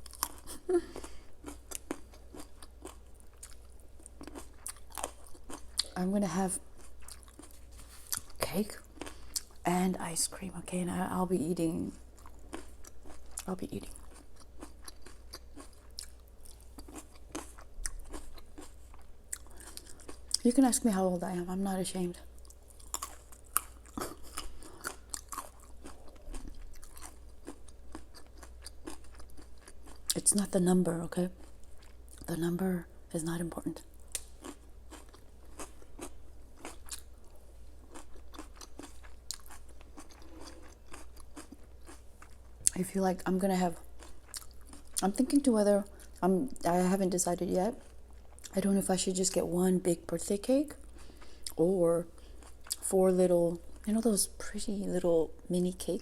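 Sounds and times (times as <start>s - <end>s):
chewing crunchy food: 0.0s - 9.6s, 11.9s - 20.5s, 22.3s - 30.4s, 31.3s - 32.3s, 33.8s - 46.6s, 47.8s - 48.6s, 52.2s - 52.9s.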